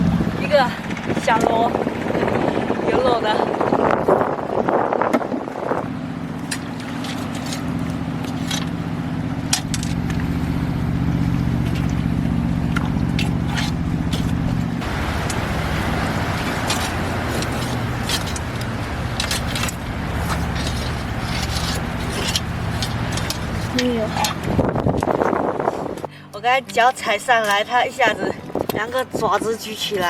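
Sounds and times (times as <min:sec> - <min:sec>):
low motor hum: 0:00.0 - 0:26.3
sharp clicks and scrapes: 0:06.5 - 0:08.8, 0:12.8 - 0:14.6, 0:16.4 - 0:25.3.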